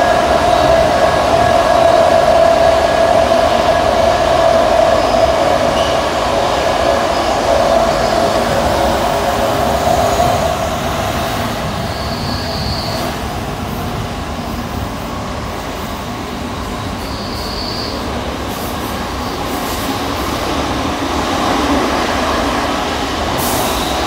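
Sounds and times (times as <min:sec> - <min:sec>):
train rumble in tunnel: 0:00.0 - 0:24.0
high wheel squeal: 0:11.6 - 0:13.2, 0:16.8 - 0:18.2.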